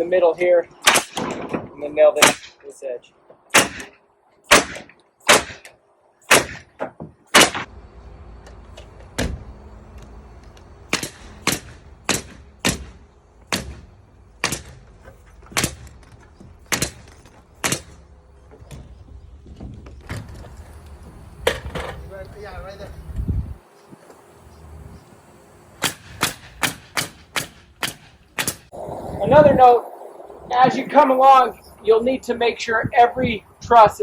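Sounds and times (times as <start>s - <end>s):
nail gun cracks: 0.9s - 1.6s, 10.9s - 13.8s.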